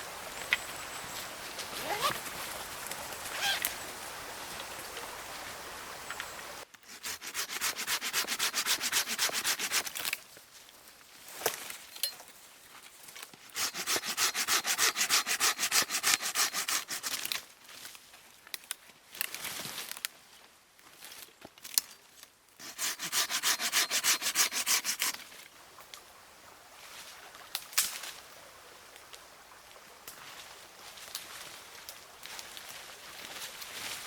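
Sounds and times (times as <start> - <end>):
fast rhythmic scraping strokes: 6.9 - 10.0, 13.6 - 17.2, 22.6 - 25.2.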